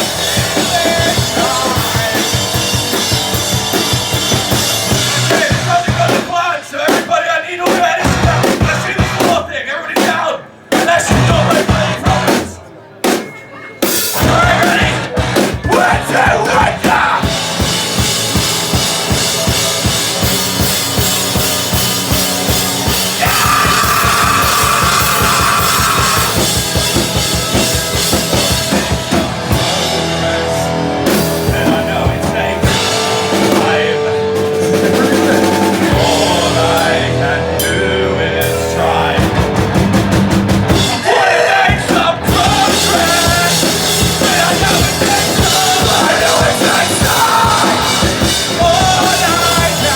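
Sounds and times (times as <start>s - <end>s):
live rock band: 0.0s - 9.5s, 10.7s - 49.9s
fast drumming: 0.0s - 13.3s, 13.9s - 37.2s, 38.4s - 49.9s
ringing guitar chords: 17.3s - 41.0s.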